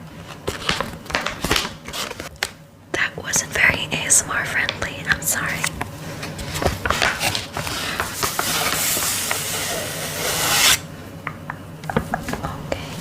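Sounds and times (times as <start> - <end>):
rubbing rasp: 8.4 - 10.8.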